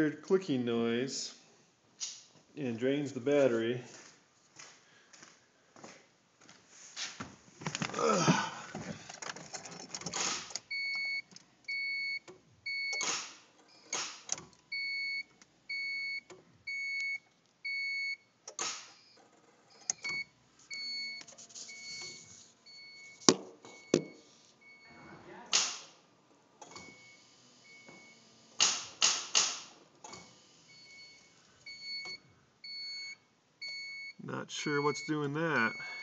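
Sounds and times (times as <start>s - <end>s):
short electronic warning beeps: 20.0s - 23.2s, 30.7s - 36.0s.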